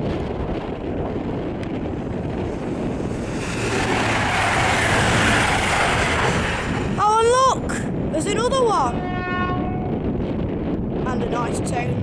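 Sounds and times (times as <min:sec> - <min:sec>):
wind buffeting microphone: 0:00.0 - 0:12.0
diesel train approaching: 0:00.8 - 0:09.0.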